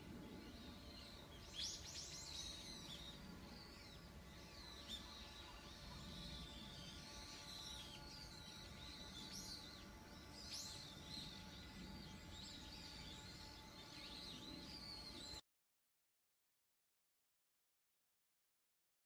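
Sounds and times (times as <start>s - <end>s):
steady low hum: 0.0s - 15.4s.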